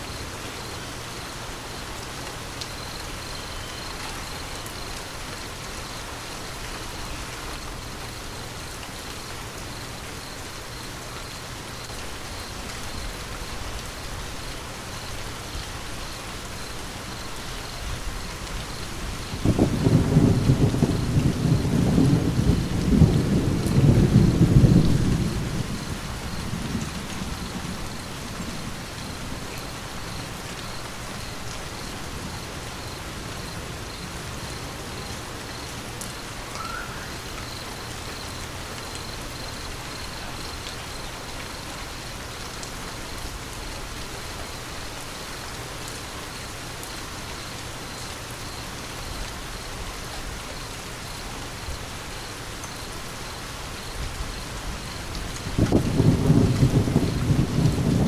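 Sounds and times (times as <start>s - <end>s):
steady rain: 0.0s - 58.0s
thunder rumble: 17.9s - 34.4s, 54.0s - 58.0s.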